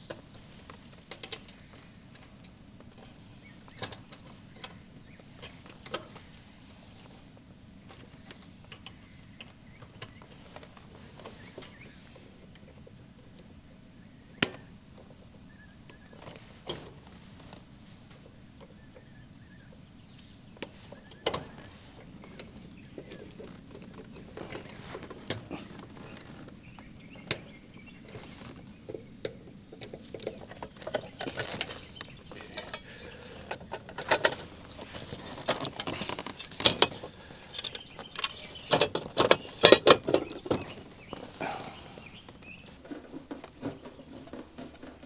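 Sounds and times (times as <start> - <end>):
screwdriver clicking and scraping: 31.2 - 40.5.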